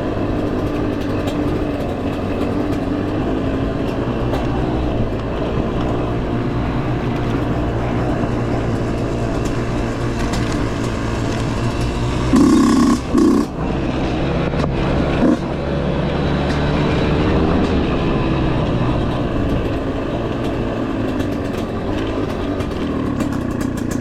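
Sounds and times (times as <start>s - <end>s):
dirt bike engine running: 0.0s - 16.3s.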